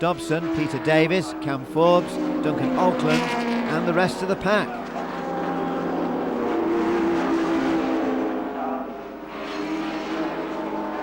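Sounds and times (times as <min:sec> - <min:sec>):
racing cars passing: 0:00.0 - 0:11.0.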